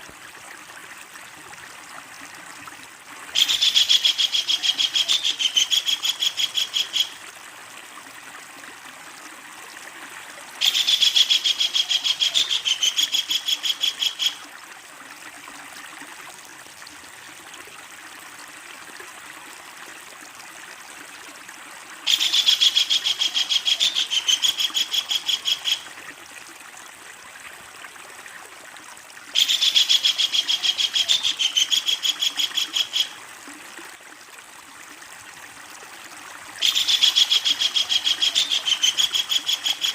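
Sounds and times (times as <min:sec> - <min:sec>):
kingfisher rattling call: 0:03.4 - 0:07.2, 0:10.6 - 0:14.4, 0:22.1 - 0:25.8, 0:29.4 - 0:33.1, 0:36.6 - 0:39.9.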